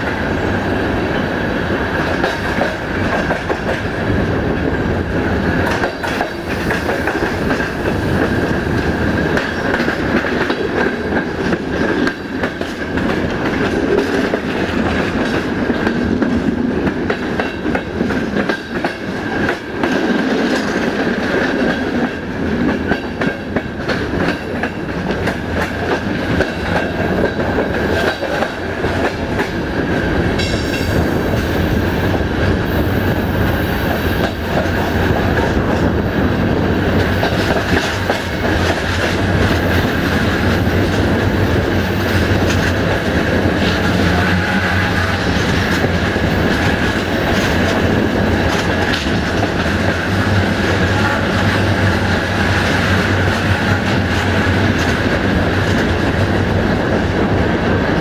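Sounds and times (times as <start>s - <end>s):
train rumbling: 0.0s - 58.0s
wheels clacking over rail joints: 5.5s - 31.5s, 36.7s - 56.5s.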